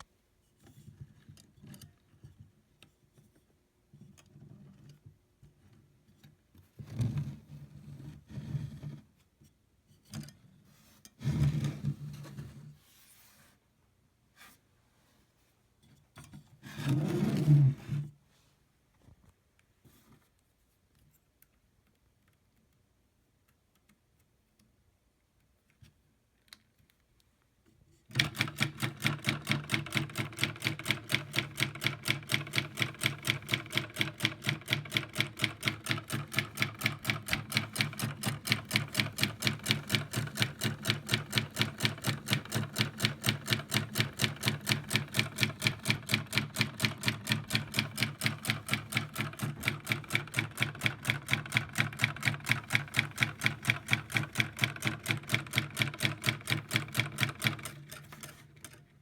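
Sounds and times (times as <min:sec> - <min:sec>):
solenoid engine clacking: 0:28.2 - 0:58.4.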